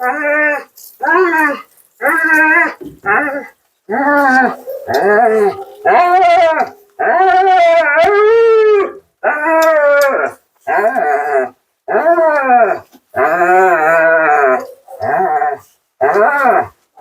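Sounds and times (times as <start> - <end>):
dog howling woo-woo calls: 4.1 - 10.2.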